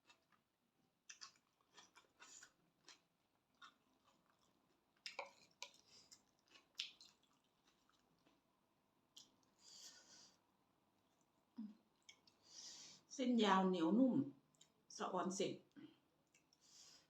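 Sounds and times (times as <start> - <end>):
person chewing food: 0.0 - 10.4, 11.0 - 12.6, 14.5 - 14.8, 16.2 - 17.0.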